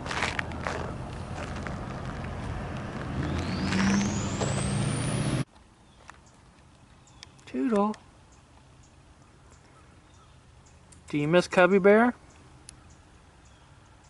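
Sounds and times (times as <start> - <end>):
road traffic going by: 0.0 - 5.5
vehicle accelerating with rising whine: 0.3 - 5.5.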